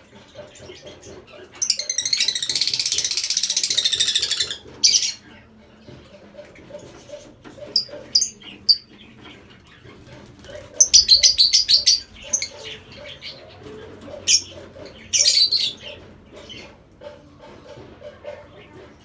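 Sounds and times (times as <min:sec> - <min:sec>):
lovebirds chirping: 0:07.0 - 0:09.9, 0:10.5 - 0:16.8.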